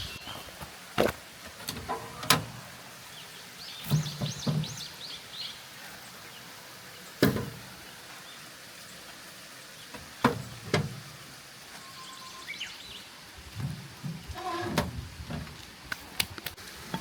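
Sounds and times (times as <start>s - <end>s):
birds chirping: 0.0s - 0.6s, 1.9s - 10.7s, 11.7s - 13.3s.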